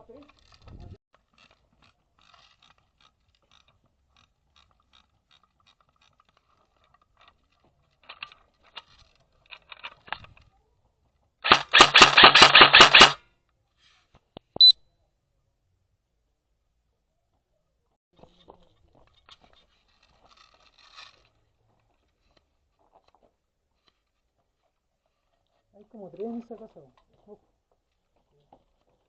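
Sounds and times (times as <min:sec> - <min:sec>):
airsoft gun full-auto burst: 0:11.4 - 0:13.2.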